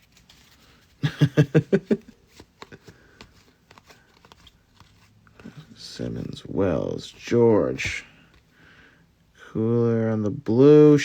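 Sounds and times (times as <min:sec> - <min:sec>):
cards rustling and clicking: 0:00.0 - 0:08.5.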